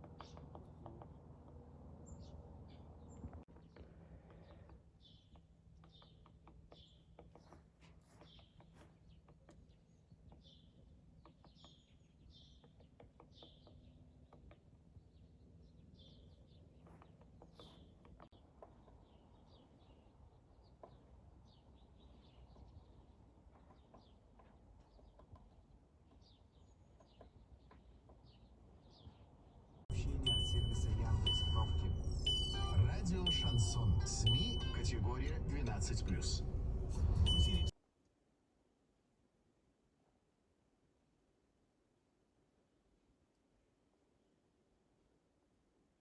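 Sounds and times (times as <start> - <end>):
small bird chirping: 0.0 - 37.7
low steady hum: 29.9 - 37.7.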